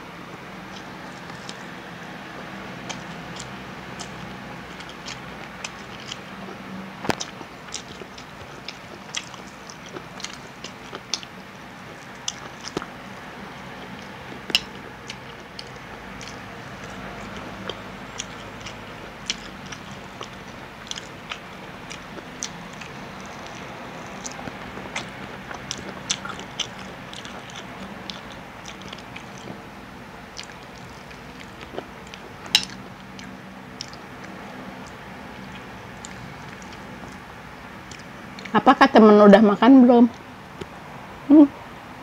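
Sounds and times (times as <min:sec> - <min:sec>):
chewing crunchy fried chicken: 0:00.3 - 0:38.6.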